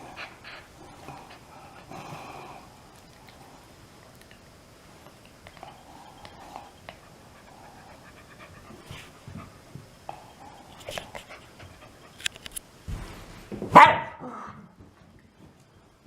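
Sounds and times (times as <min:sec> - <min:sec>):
faint clicks and rustles: 0:08.3 - 0:13.7.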